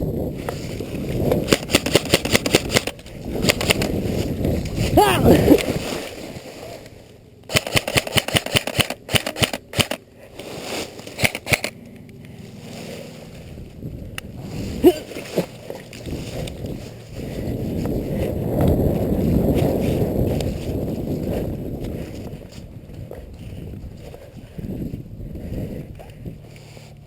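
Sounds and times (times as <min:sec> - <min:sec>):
airsoft guns firing: 0:01.5 - 0:03.9, 0:07.5 - 0:10.0, 0:11.2 - 0:11.7.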